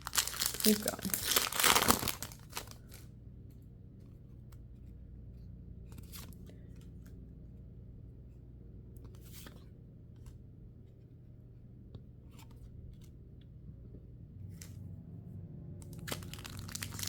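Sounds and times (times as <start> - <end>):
foil wrappers crinkling: 0.0 - 3.1, 15.9 - 17.0
low hum: 2.5 - 17.0.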